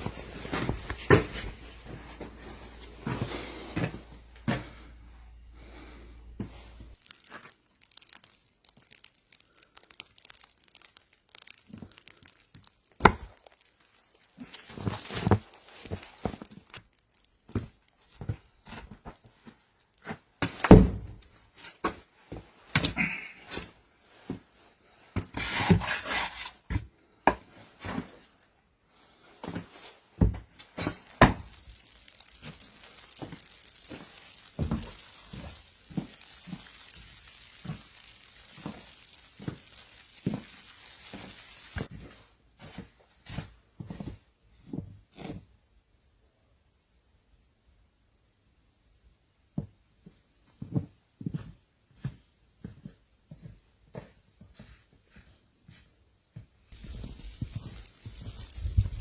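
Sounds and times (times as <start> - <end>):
faint steady hiss: 0.0 - 59.0.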